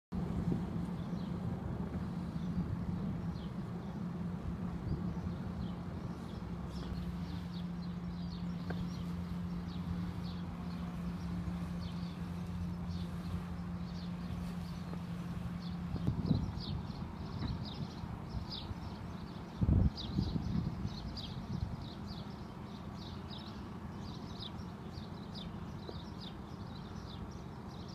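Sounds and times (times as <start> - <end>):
low hum and rumble: 0.1 - 27.9
small birds chirping: 0.9 - 1.4, 2.0 - 27.9.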